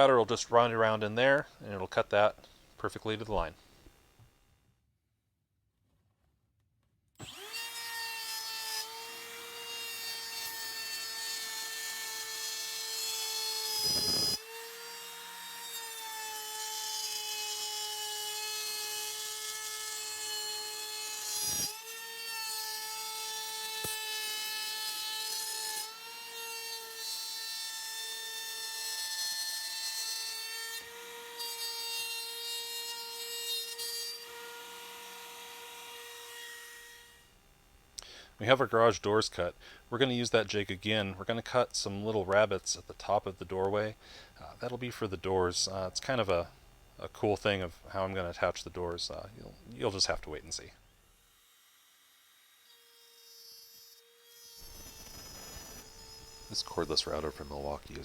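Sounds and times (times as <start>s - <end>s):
router whining cutting plywood: 7.2s - 37.2s, 50.8s - 58.0s.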